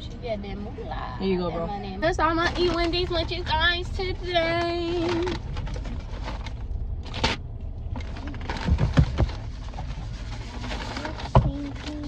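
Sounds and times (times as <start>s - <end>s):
car engine idling: 0.0s - 12.0s
knocks and thumps: 8.0s - 11.9s.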